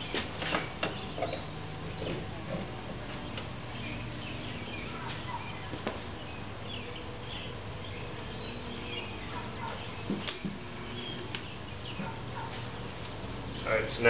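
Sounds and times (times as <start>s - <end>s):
steady low hum: 0.0s - 14.0s
faint small birds chirping: 3.1s - 14.0s.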